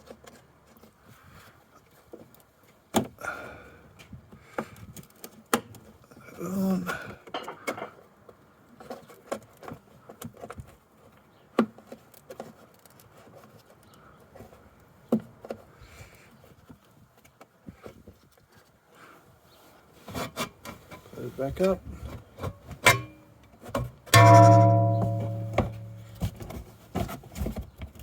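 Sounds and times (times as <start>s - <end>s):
sharp knocks: 24.2s - 26.6s.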